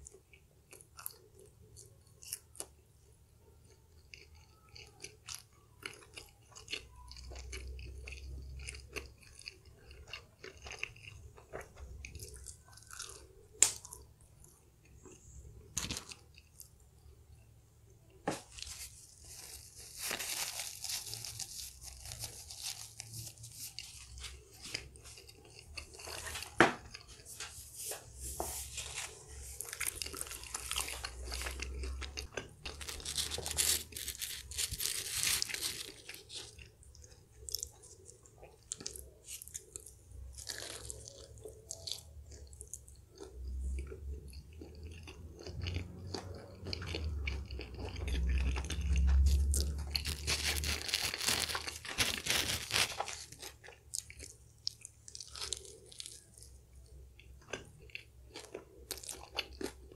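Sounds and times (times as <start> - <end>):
quiet chewing: 0.0 - 59.9
person crunching pizza crust: 3.8 - 17.1, 18.3 - 59.9.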